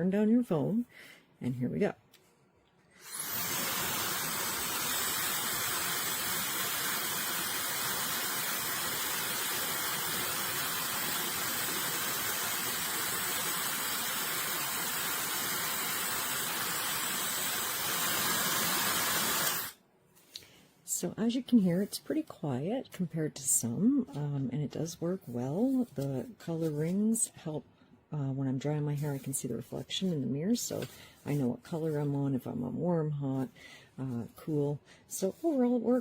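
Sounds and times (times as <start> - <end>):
hair dryer blowing air: 3.0 - 19.8.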